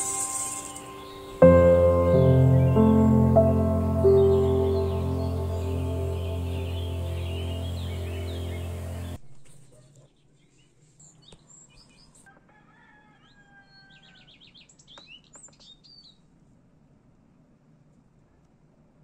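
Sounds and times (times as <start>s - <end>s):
background music: 0.0s - 9.2s
birds chirping and whistling: 0.0s - 9.2s.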